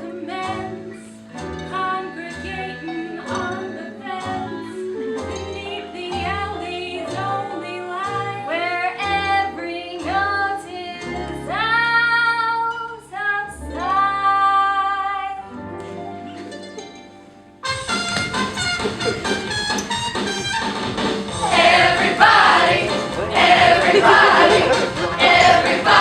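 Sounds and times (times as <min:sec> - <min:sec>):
instrumental accompaniment: 0:15.5 - 0:26.0
people singing a show tune: 0:21.4 - 0:26.0.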